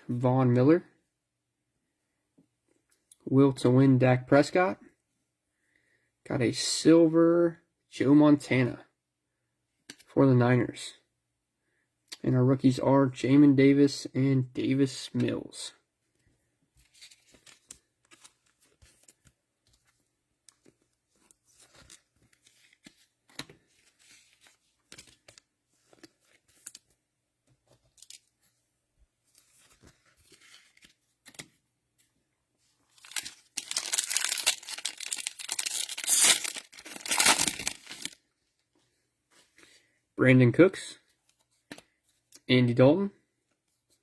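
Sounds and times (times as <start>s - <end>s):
trading cards being handled: 16.8s - 28.6s, 29.2s - 38.2s
plastic wrapper ripping: 33.0s - 38.2s.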